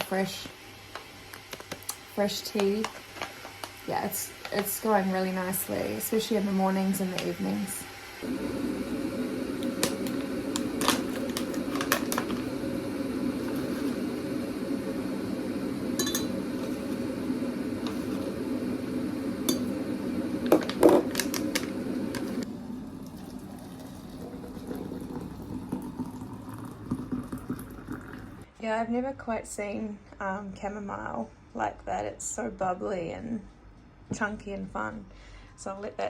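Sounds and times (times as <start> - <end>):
kettle heating rumble: 0.0 - 28.5
mug glass and spoon clinking: 16.0 - 16.4.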